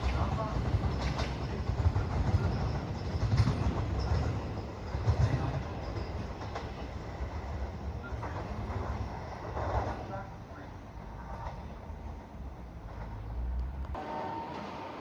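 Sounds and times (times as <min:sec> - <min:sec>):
wheel clatter: 0:00.0 - 0:07.0
train rumbling on rails: 0:00.0 - 0:15.0.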